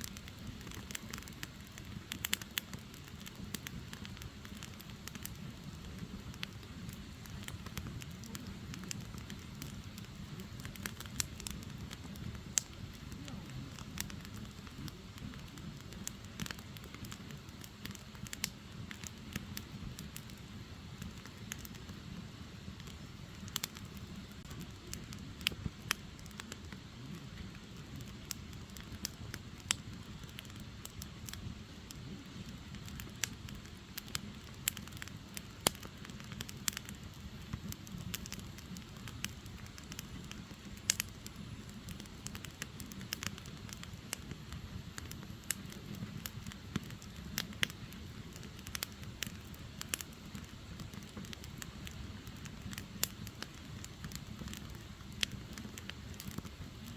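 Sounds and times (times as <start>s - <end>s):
crackles and pops from logs: 0.0s - 56.9s
firewood burning: 0.0s - 56.9s.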